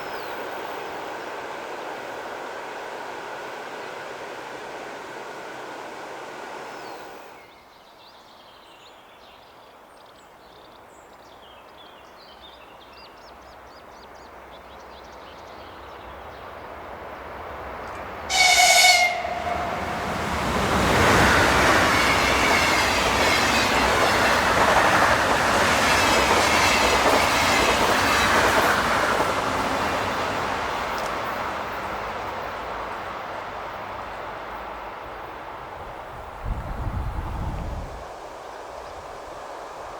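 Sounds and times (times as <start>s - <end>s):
electric train passing: 0.0s - 7.5s, 16.0s - 39.9s
wheels and rails roar: 0.0s - 7.5s, 16.0s - 39.9s
train horn blast: 18.3s - 23.9s.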